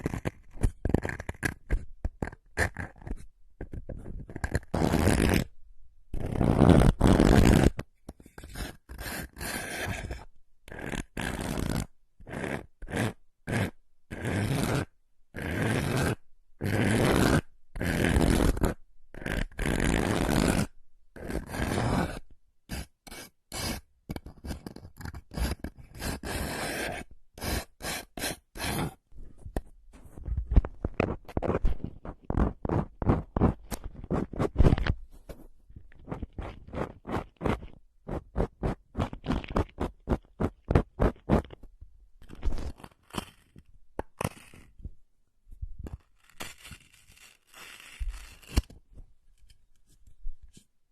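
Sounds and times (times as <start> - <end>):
quick scratches and ticks: 30.2 - 35.4, 36.0 - 41.6.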